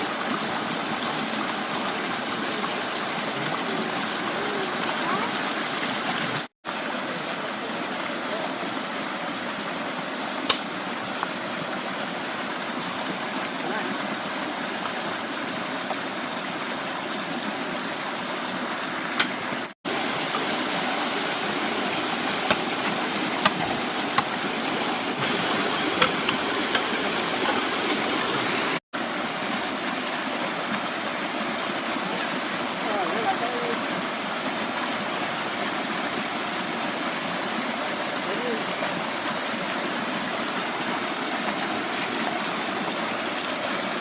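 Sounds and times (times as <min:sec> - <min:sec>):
stream water rushing: 0:00.0 - 0:44.0.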